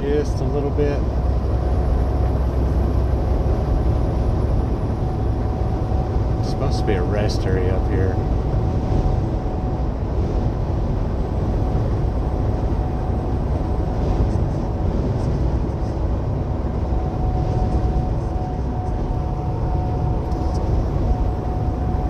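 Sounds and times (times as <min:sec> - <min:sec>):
road noise: 0:00.0 - 0:22.0
truck engine drone: 0:00.0 - 0:22.0.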